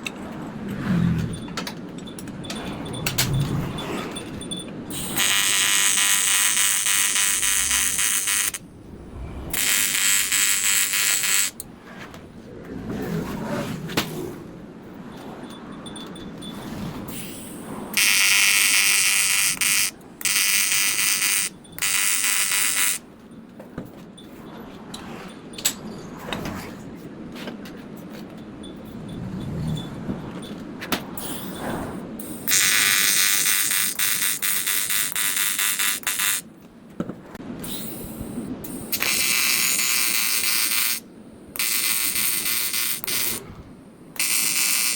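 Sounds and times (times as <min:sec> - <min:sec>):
clicks and handling noise: 0:00.0 - 0:08.6
welding arc buzzing: 0:04.9 - 0:08.7, 0:09.5 - 0:11.6, 0:18.0 - 0:23.0, 0:32.4 - 0:36.5, 0:37.7 - 0:41.0, 0:41.6 - 0:43.4, 0:44.2 - 0:44.9.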